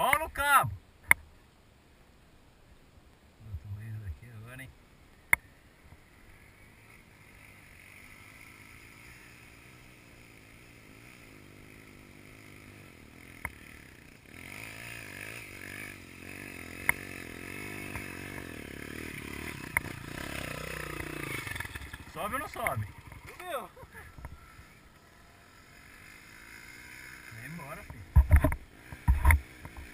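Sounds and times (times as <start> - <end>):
motorbike engine revving: 6.3 - 29.9.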